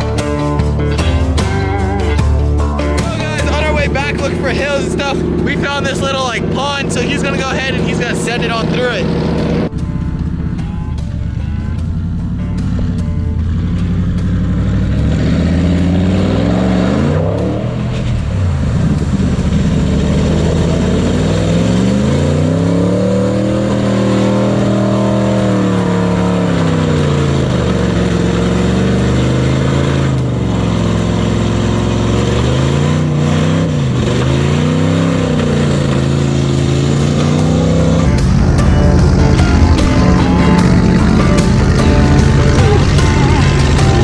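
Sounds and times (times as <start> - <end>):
truck engine revving: 0.0 - 44.0.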